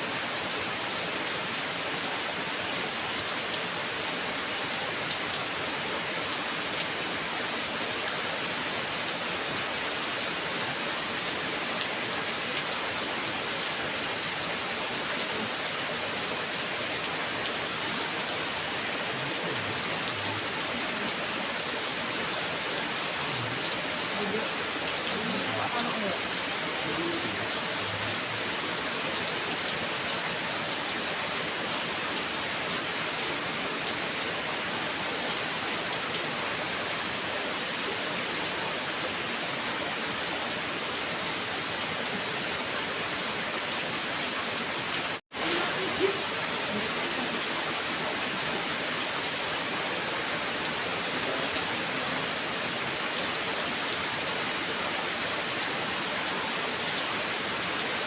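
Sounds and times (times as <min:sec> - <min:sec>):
heavy rain hissing: 0:00.0 - 0:33.8, 0:40.1 - 0:55.1.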